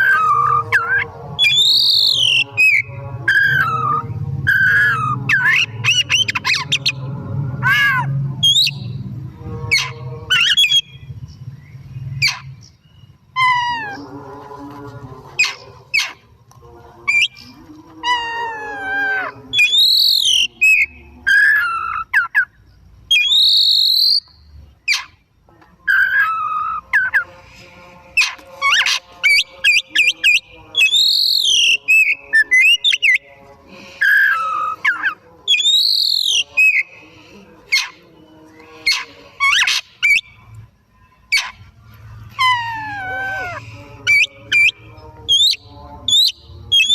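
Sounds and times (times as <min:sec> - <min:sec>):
low hum: 0:00.0 - 0:19.6
bird singing varied song: 0:00.0 - 0:46.9.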